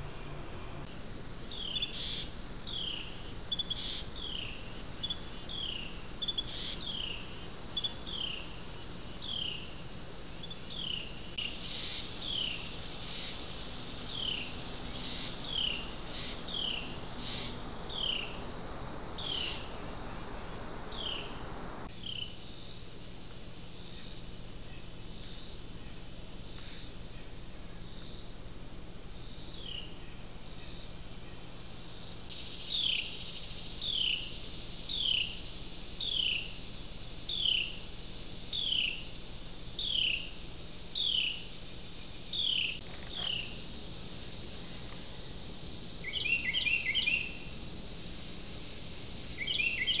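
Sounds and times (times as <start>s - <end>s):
steady high hiss: 0.0s - 50.0s
songbird whistling: 19.2s - 19.8s, 20.9s - 22.3s, 46.0s - 47.4s, 49.4s - 50.0s.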